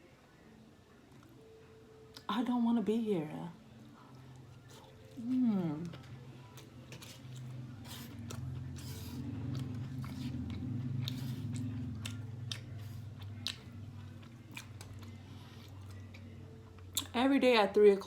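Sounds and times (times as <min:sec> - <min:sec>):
low steady hum: 0:00.0 - 0:18.0
chewing food: 0:04.0 - 0:17.2.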